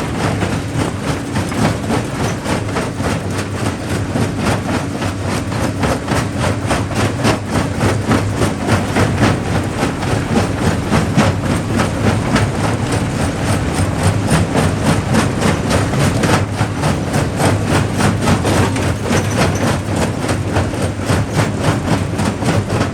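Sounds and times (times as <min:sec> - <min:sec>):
rock crusher knocking: 0:07.1 - 0:22.9.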